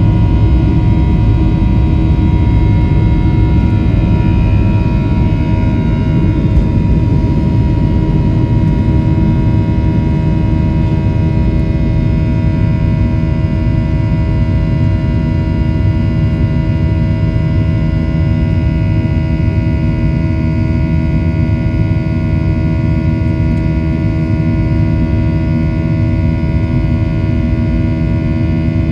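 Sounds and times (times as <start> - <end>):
jet engine whining tones: 0.0 - 14.6
jet cabin rumble: 0.0 - 20.8.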